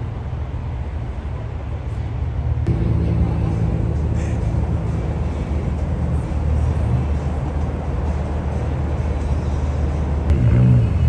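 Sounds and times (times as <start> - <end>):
car engines low rumble: 2.6 - 11.0.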